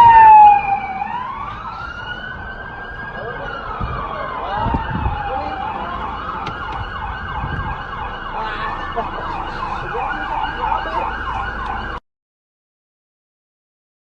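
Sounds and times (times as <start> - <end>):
siren yelping: 0.0 - 12.0
traffic rumble: 0.0 - 12.0.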